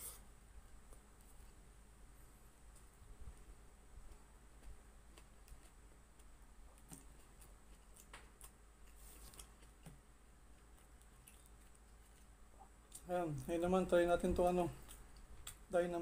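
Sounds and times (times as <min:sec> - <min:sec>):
low steady hum: 0:00.0 - 0:16.0
crunchy chewing: 0:04.0 - 0:13.6, 0:14.7 - 0:15.7.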